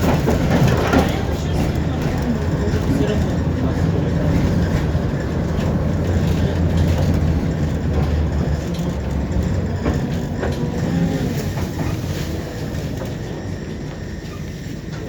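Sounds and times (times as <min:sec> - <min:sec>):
track clicks and knocks: 0:00.0 - 0:14.2
tram wheels rumbling on rails: 0:00.0 - 0:15.0.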